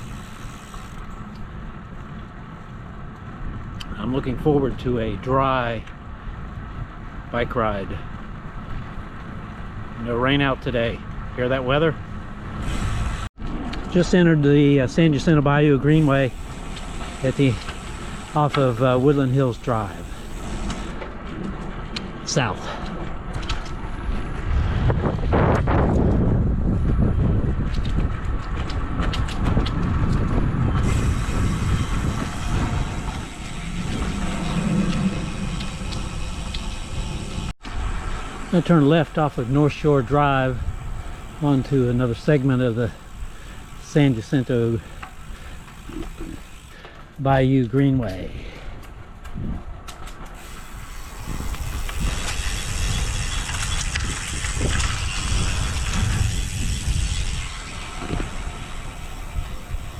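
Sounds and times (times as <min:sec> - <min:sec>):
bicycle rolling noise: 0:00.0 - 0:59.9
wind buffeting microphone: 0:06.0 - 0:46.8, 0:48.2 - 0:59.9
high steady hiss: 0:35.3 - 0:46.7, 0:50.4 - 0:59.9.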